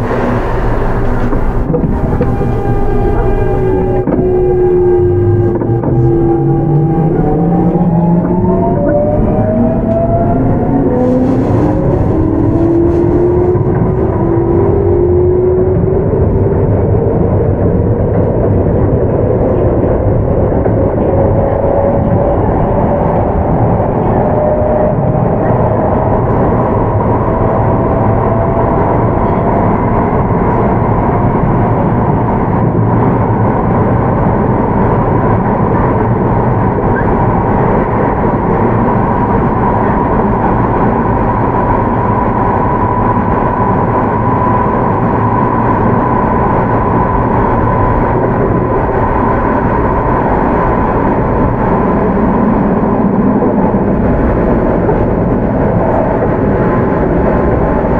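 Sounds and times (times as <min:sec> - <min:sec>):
traction motor whine: 0:00.0 - 0:33.4
wheel and rail rumble: 0:00.0 - 0:57.9.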